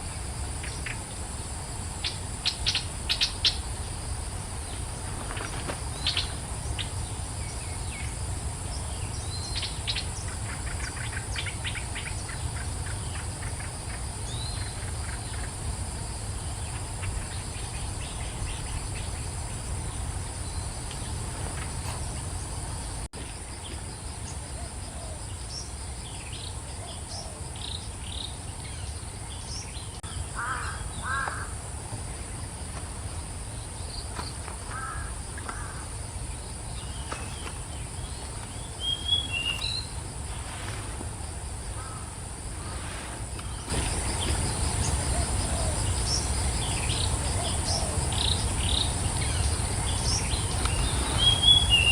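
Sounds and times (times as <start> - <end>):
low bird calls: 33.8 - 35.9, 41.8 - 51.9
birds chirping: 43.4 - 51.9.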